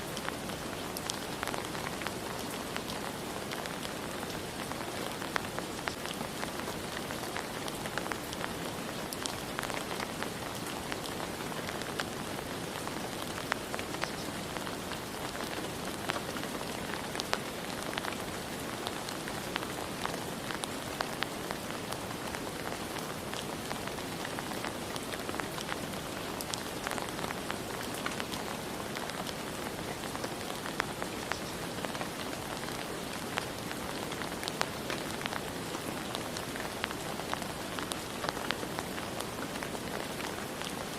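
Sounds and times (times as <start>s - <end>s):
rain falling: 0.0s - 40.9s
raindrops pattering on surfaces: 0.0s - 40.9s.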